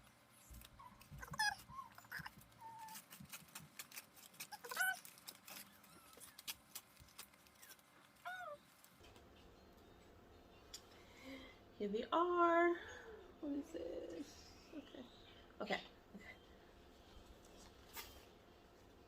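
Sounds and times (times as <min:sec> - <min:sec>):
packaging crinkling and rustling: 0:00.4 - 0:09.0.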